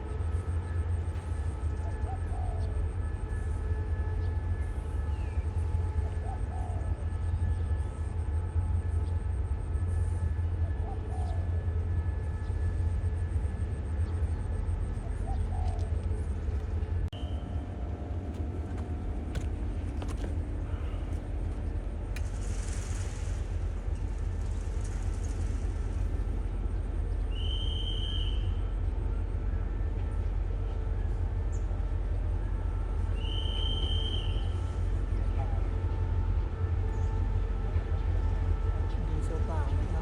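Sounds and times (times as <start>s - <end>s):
diesel locomotive rumbling: 0.0s - 40.0s.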